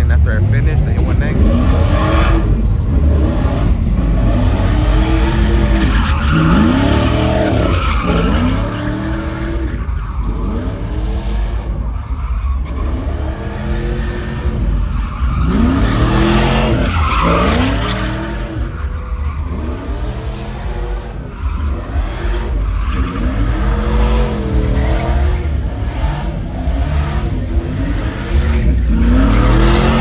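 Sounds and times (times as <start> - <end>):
tires screeching: 0.0 - 30.0
truck engine revving: 0.0 - 30.0.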